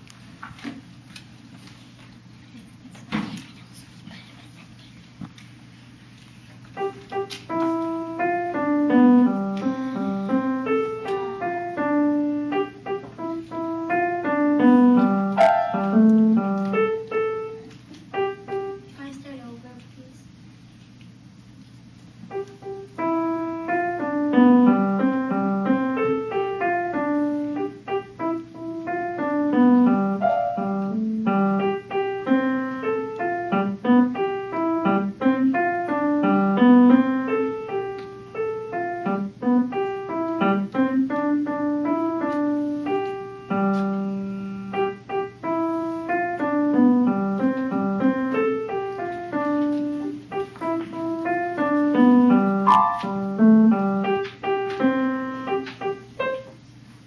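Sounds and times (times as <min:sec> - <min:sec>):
solo piano piece: 0:06.5 - 0:18.9, 0:22.2 - 0:57.0.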